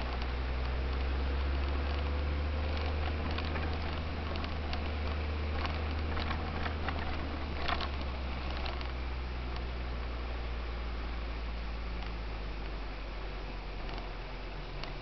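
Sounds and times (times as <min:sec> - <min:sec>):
light clicks and rattles: 0:00.0 - 0:09.7, 0:13.8 - 0:15.0
vehicle engine droning: 0:00.0 - 0:15.0.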